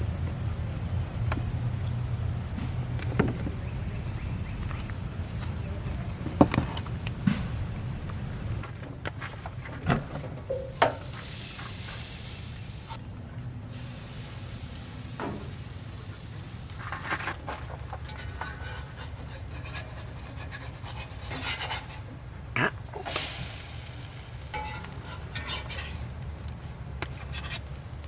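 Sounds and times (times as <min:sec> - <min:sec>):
utensil knocking against pan: 0:10.5 - 0:11.1
butter sizzling in a frying pan: 0:10.6 - 0:13.0, 0:13.7 - 0:17.4, 0:23.1 - 0:26.5.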